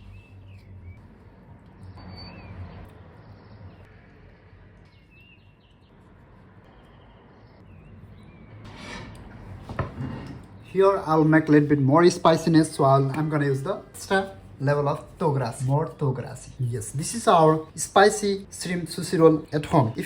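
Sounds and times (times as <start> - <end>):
bird chirps: 0.0 - 1.0, 1.8 - 6.0, 6.6 - 8.6.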